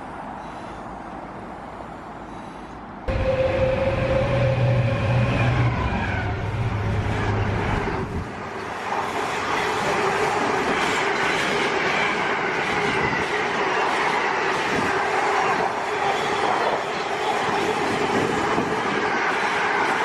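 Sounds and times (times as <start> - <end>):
train wheels rushing on rails: 3.1 - 20.0.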